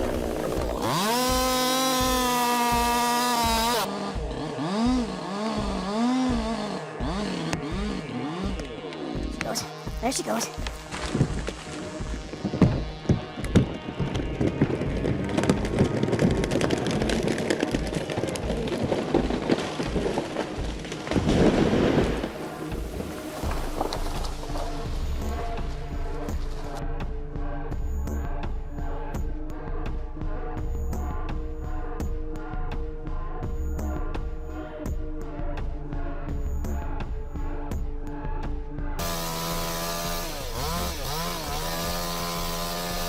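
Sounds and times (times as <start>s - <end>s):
branches crackling and snapping: 0.0s - 3.9s, 8.6s - 26.8s, 39.2s - 43.0s
heavy tree crash: 0.0s - 3.9s, 10.6s - 26.7s, 39.0s - 43.0s
chainsaw engine revving: 0.0s - 13.8s, 18.6s - 26.8s, 39.0s - 43.0s.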